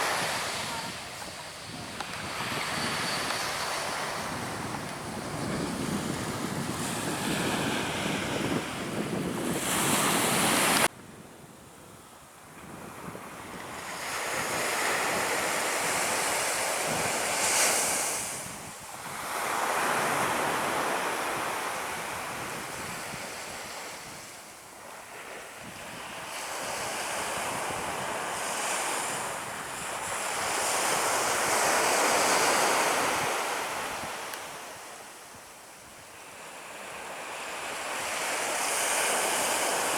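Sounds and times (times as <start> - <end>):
surf breaking on beach: 0.0 - 10.9
wind buffeting microphone: 0.0 - 11.7.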